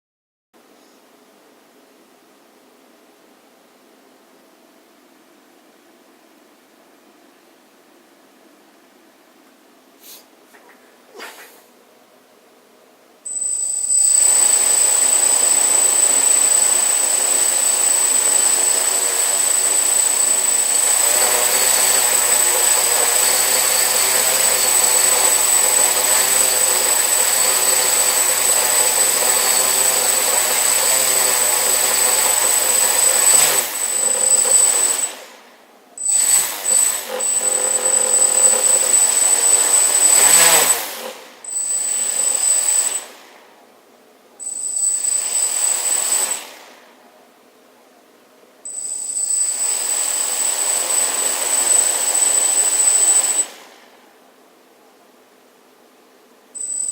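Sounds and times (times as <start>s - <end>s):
drone motors whining: 13.3s - 35.3s, 36.0s - 43.1s, 44.4s - 46.5s, 48.7s - 53.6s, 56.6s - 56.9s.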